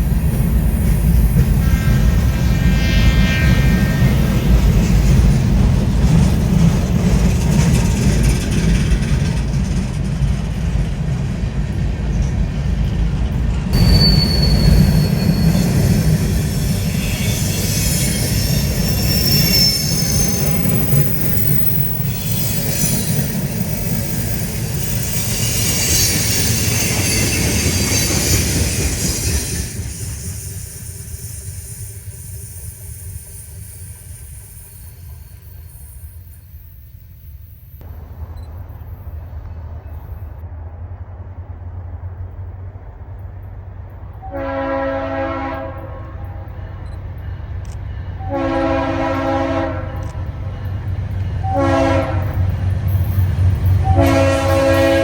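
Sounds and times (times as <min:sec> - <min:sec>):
freight train rumbling on rails: 0:00.0 - 0:55.0
high-pitched wheel squeal: 0:13.8 - 0:37.0.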